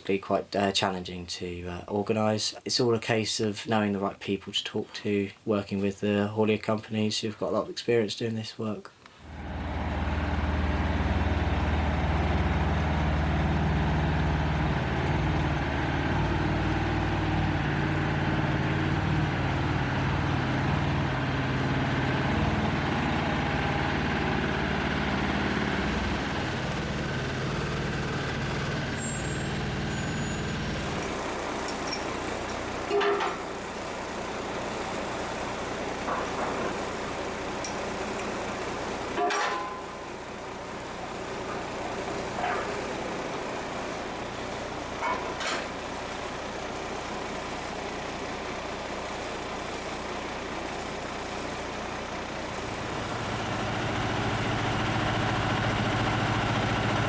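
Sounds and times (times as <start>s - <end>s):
lorry engine running: 9.3s - 57.0s
clunk: 32.9s - 33.5s, 36.1s - 36.8s, 39.2s - 40.0s, 45.0s - 45.7s.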